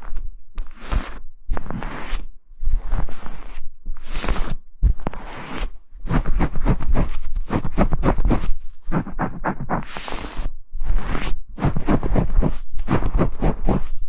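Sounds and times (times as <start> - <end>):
brushing strokes on microphone: 0.6 - 14.0.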